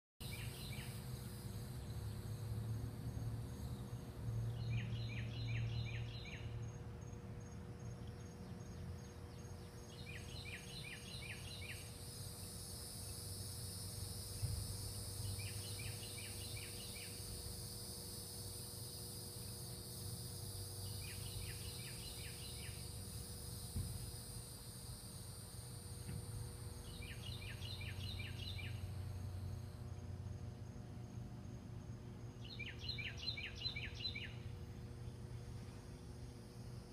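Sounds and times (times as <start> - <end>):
bird singing: 0.2 - 13.4, 14.8 - 17.8, 19.3 - 23.6, 26.6 - 30.0, 32.2 - 36.4
insect trill: 0.2 - 36.9
low steady hum: 0.2 - 36.9.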